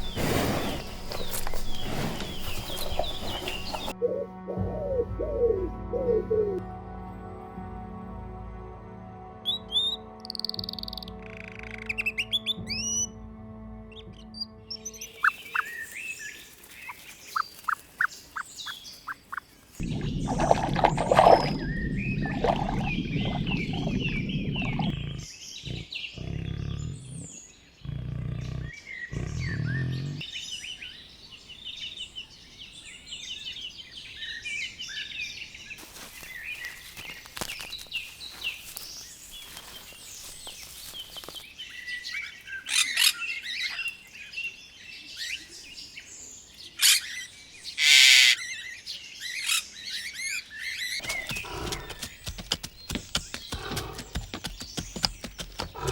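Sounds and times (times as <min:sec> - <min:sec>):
birds chirping and peeping: 0:00.0 - 0:04.0, 0:13.9 - 0:55.9
low rumbling noise: 0:19.8 - 0:25.2.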